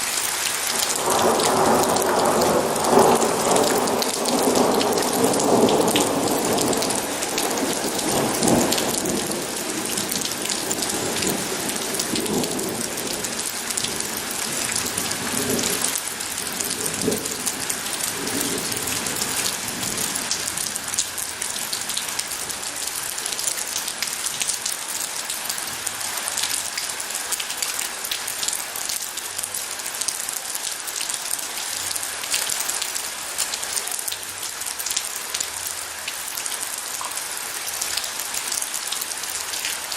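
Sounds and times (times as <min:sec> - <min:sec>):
rain pattering: 0:00.0 - 0:39.9
thunder rumbling: 0:00.8 - 0:20.7.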